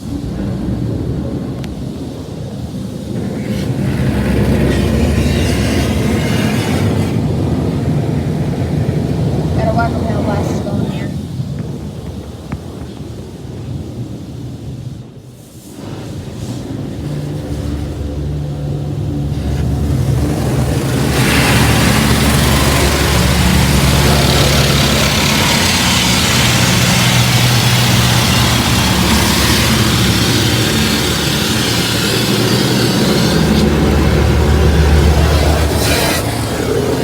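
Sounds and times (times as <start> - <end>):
water spraying against car: 0.0 - 37.0
pump and motors humming: 16.3 - 37.0.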